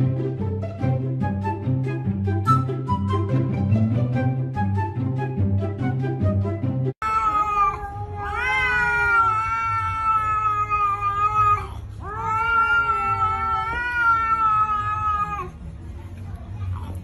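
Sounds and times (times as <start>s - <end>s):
flute music: 0.2s - 7.0s
cat yowling: 7.0s - 15.6s.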